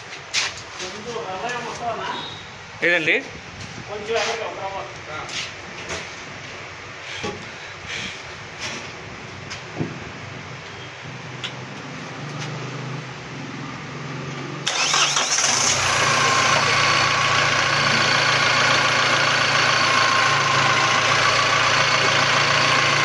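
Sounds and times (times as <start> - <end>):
vehicle engine starting and running: 11.2 - 23.0.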